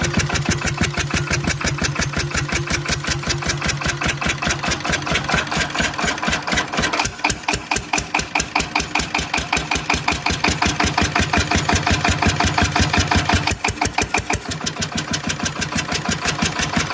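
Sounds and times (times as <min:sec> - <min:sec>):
engine exhaust beat: 0:00.0 - 0:16.9.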